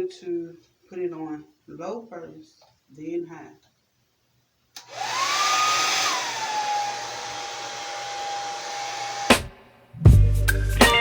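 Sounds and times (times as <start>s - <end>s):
blow dryer motor whine: 4.8s - 9.5s.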